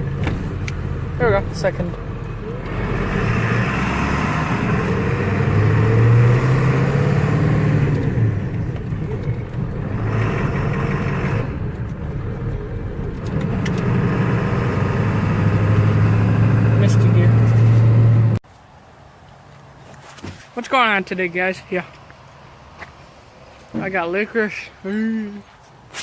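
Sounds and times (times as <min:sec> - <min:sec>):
truck engine accelerating through gears: 0:00.0 - 0:18.4.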